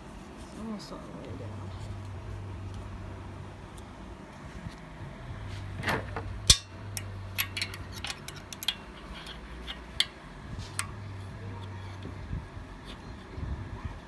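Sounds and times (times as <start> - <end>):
metal tool clicking and tapping: 6.5 - 11.0
metal scrape: 7.4 - 12.0.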